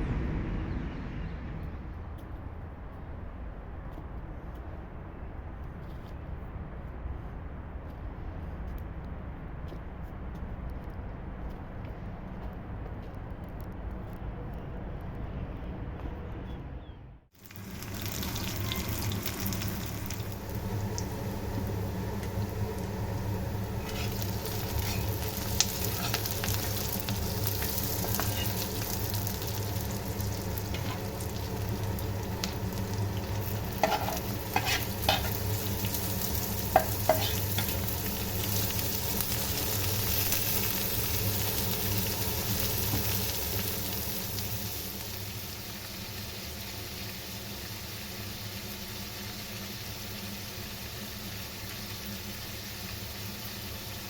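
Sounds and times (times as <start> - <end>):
food sizzling in a pan: 17.4 - 54.0.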